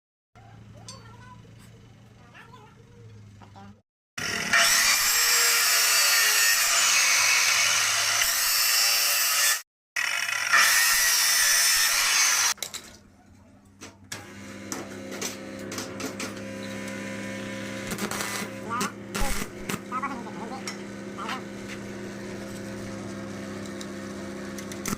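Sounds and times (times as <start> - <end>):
power tool grinding metal: 4.2 - 12.6.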